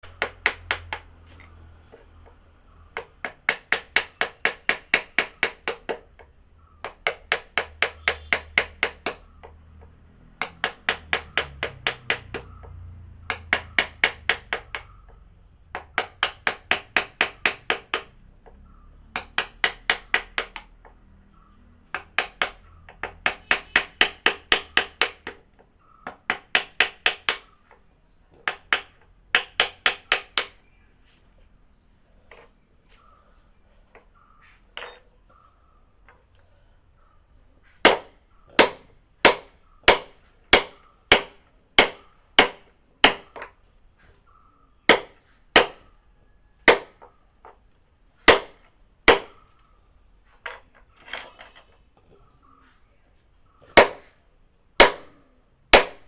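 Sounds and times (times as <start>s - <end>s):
rapid hammer strikes on wood: 0.0s - 1.3s, 2.2s - 21.0s, 21.8s - 30.6s, 37.8s - 43.6s, 44.9s - 45.9s, 46.6s - 47.1s, 48.2s - 49.5s, 53.7s - 54.1s, 54.8s - 56.0s.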